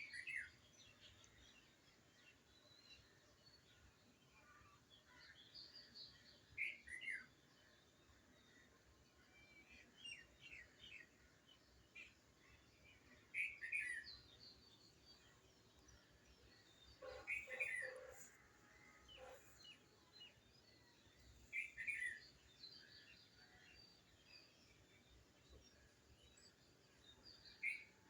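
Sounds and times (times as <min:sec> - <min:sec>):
birds chirping: 0:13.4 - 0:18.4.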